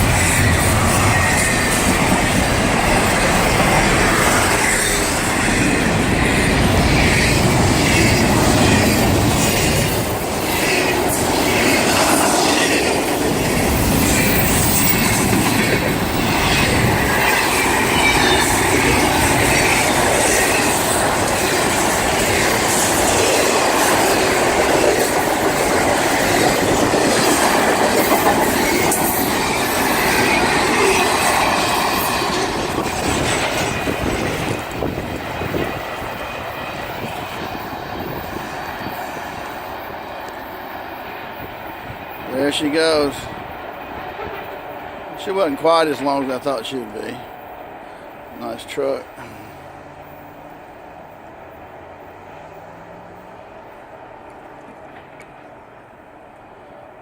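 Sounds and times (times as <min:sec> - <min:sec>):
high wheel squeal: 0:00.0 - 0:12.9, 0:13.6 - 0:20.9
freight train wheels rumbling: 0:00.0 - 0:57.0.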